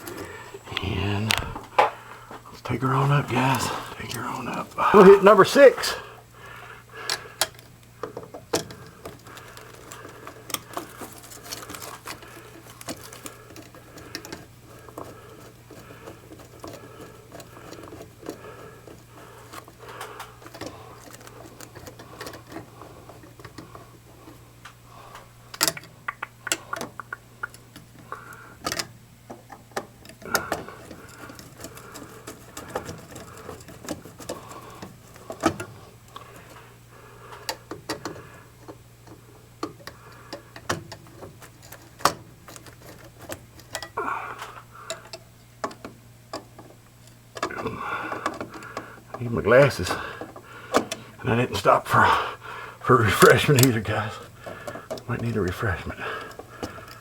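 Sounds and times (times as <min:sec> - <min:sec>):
steady low hum: 0:00.0 - 0:57.0
tools clicking on metal parts: 0:07.1 - 0:23.8, 0:28.6 - 0:36.6, 0:37.4 - 0:44.0.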